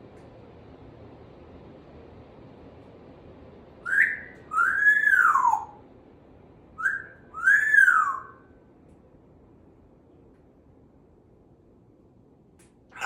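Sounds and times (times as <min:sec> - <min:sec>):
parrot whistling: 0:03.8 - 0:05.7, 0:06.8 - 0:08.4.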